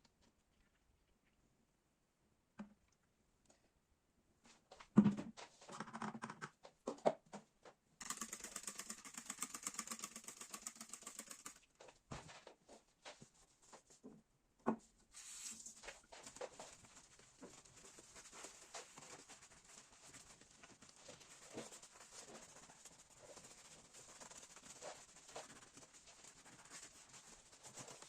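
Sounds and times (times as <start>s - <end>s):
rapid rasping scrubbing: 16.5s - 28.0s.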